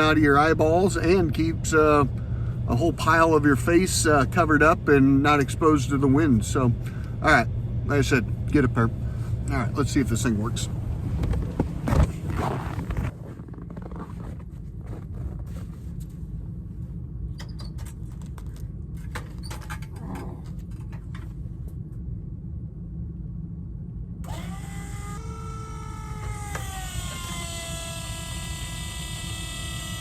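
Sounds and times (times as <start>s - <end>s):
low rumble: 0.0s - 24.3s
electric motor whining: 24.2s - 30.0s.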